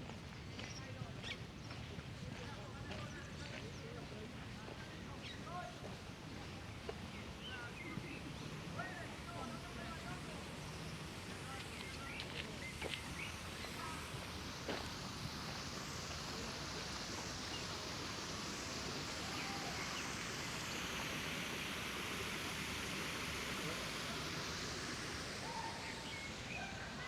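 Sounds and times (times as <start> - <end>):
steady hiss: 3.1 - 27.0.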